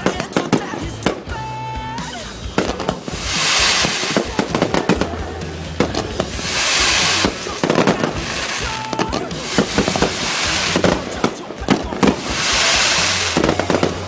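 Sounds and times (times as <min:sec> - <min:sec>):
fireworks bangs and pops: 0:00.0 - 0:14.0
hissing crackle: 0:02.5 - 0:14.0
steady firework whistle: 0:02.6 - 0:05.2, 0:05.8 - 0:14.0.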